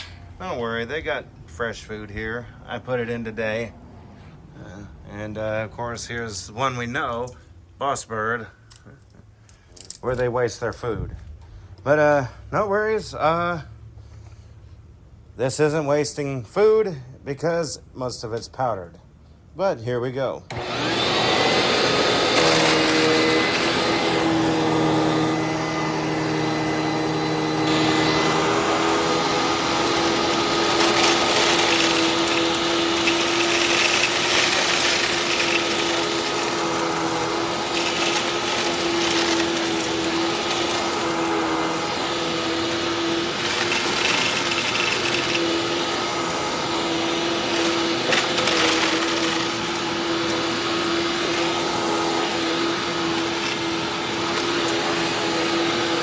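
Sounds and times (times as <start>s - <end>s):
vacuum cleaner running: 20.5s - 56.0s.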